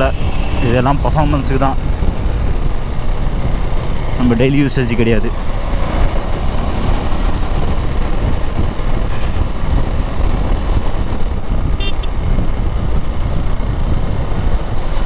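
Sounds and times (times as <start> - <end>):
short high-pitched beep: 0.0 - 0.8
motorcycle riding rumble: 0.0 - 15.0.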